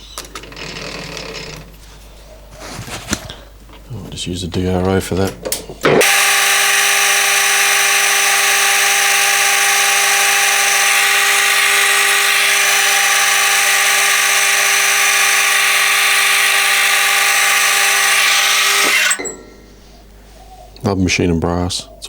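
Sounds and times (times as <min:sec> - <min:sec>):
lathe machine whine: 0:05.9 - 0:19.8.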